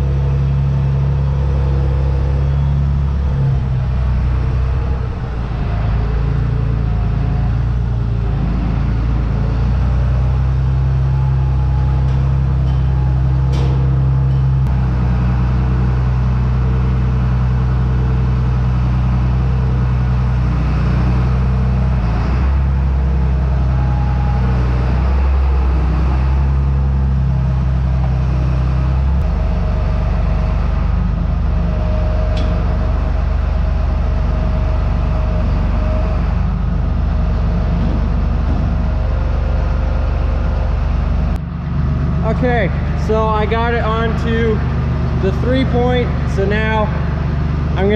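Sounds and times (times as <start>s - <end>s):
steady whine: 0.0s - 20.6s, 22.6s - 47.9s
tractor engine running: 0.0s - 47.9s.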